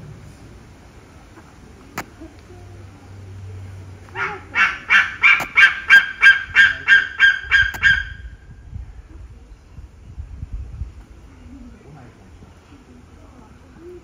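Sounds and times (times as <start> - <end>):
bird calling loudly: 4.2 - 8.4.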